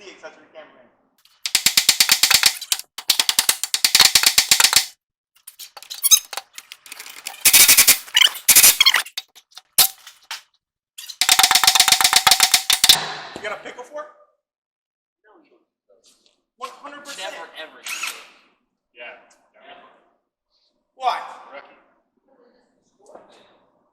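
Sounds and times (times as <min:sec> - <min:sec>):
impact wrench hammering: 0:01.3 - 0:04.9, 0:07.4 - 0:09.2, 0:11.2 - 0:13.0
loose clicks: 0:01.3 - 0:04.9, 0:05.8 - 0:10.4, 0:11.1 - 0:13.0.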